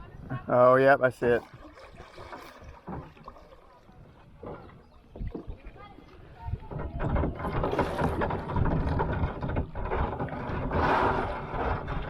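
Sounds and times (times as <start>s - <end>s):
wind noise on microphone: 0.0s - 0.6s, 3.9s - 12.0s
paddle and water sloshing: 0.0s - 12.0s
rush of water: 0.7s - 12.0s.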